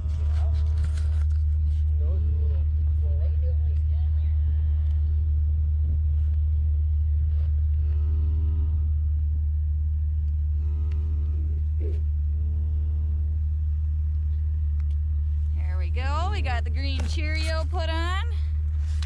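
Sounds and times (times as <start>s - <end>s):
vehicle engine idling: 0.0s - 19.0s
cattle bawling: 10.3s - 15.5s.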